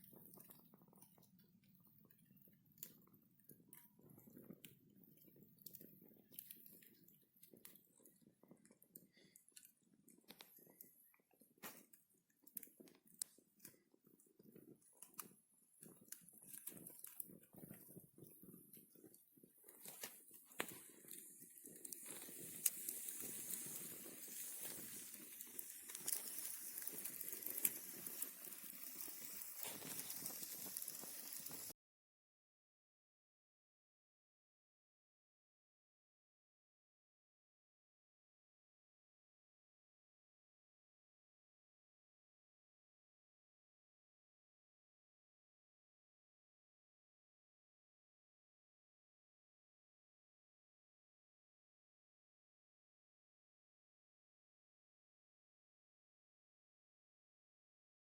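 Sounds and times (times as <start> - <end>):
campfire crackling: 0.0 - 31.7
sharp snaps and pops: 0.0 - 31.8
flame flutter and hiss: 4.0 - 10.9, 15.8 - 31.7.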